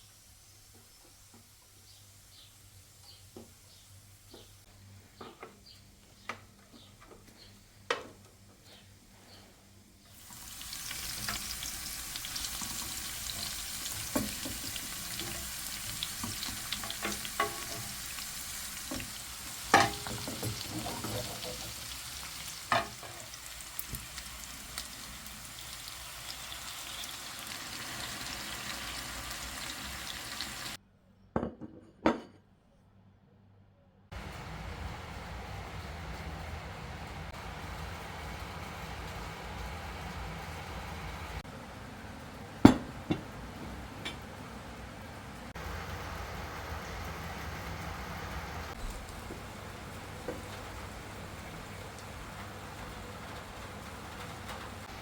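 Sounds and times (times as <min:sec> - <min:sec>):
food sizzling in a pan: 0:10.2 - 0:30.8, 0:45.5 - 0:55.0.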